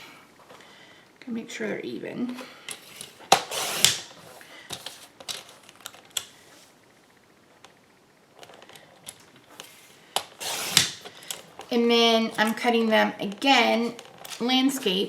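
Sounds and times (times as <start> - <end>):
paper trimmer blade swishing: 2.9 - 4.1, 10.4 - 11.1.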